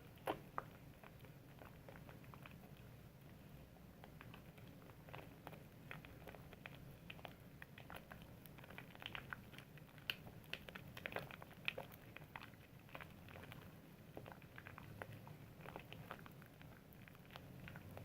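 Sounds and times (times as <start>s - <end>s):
soap lathering wet crackling: 4.0s - 18.0s.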